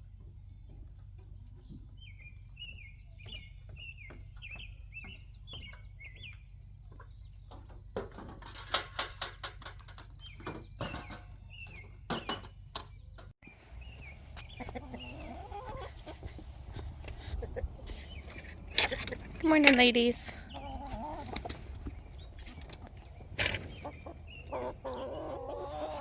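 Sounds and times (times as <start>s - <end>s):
birds chirping: 0.0s - 26.0s
sharp clicks and knocks: 18.3s - 20.1s.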